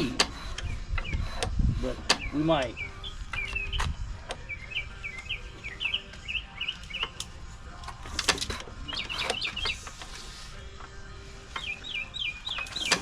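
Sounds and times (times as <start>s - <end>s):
sharp clicks and knocks: 0.1s - 2.3s, 6.9s - 9.8s
songbird chirping: 0.4s - 13.0s.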